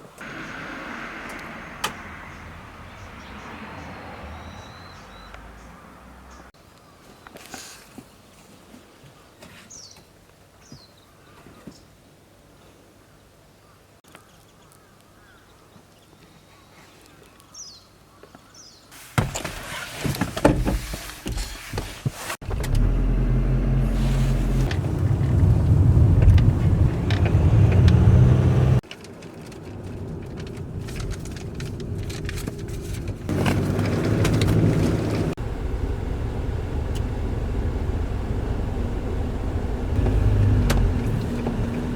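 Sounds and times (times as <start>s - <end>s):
car engine rumble: 0.0s - 6.6s, 22.4s - 41.9s
road noise: 0.0s - 6.6s, 22.4s - 41.9s.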